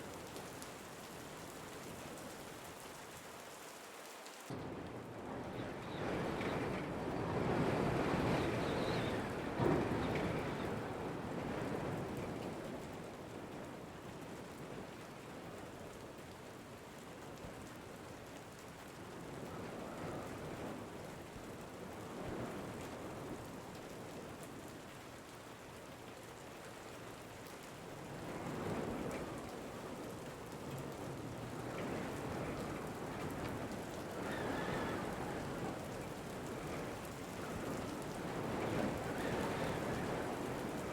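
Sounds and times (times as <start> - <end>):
rain: 0.0 - 40.9
wind gusts: 4.5 - 13.8, 27.9 - 40.9.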